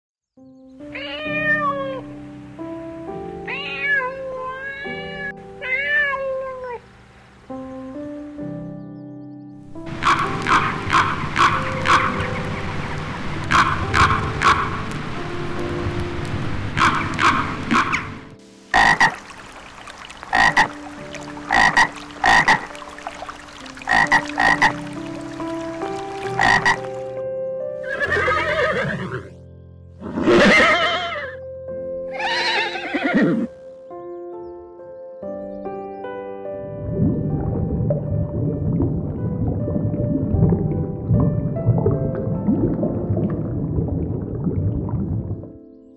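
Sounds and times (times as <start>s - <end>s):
music of held chords: 0.4s - 19.1s, 20.3s - 45.9s
cat meowing: 1.0s - 2.1s, 3.5s - 6.8s.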